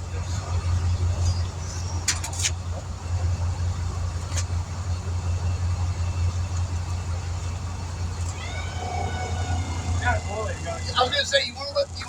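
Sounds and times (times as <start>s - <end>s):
motor humming: 8.1s - 11.3s.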